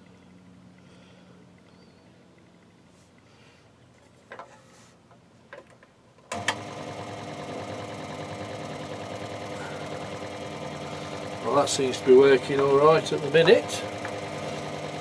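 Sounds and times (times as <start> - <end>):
scroll saw running: 6.3 - 15.0.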